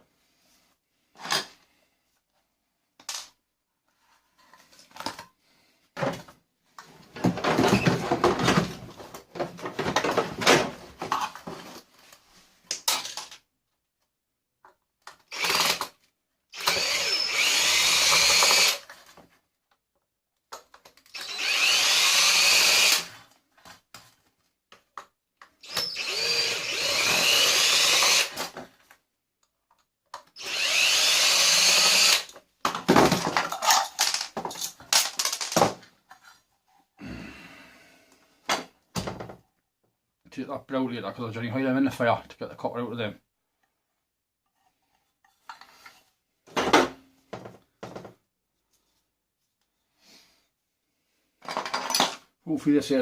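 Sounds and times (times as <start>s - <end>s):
power drill whining: 15.3s - 15.9s, 16.5s - 18.9s, 21.1s - 23.2s, 25.6s - 28.5s, 30.3s - 32.4s.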